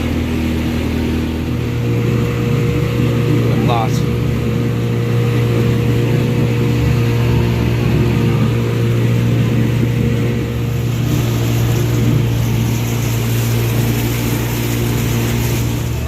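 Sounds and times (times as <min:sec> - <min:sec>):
motorboat engine droning: 0:00.0 - 0:16.0
rushing water hiss: 0:05.0 - 0:16.0.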